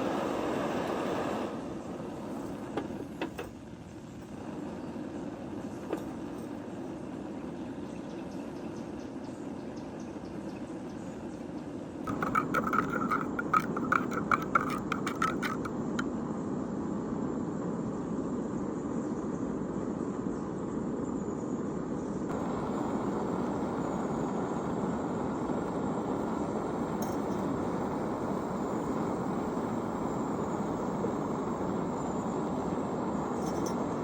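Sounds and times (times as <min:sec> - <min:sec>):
light metallic clinks: 0:26.9 - 0:27.7, 0:33.2 - 0:34.0.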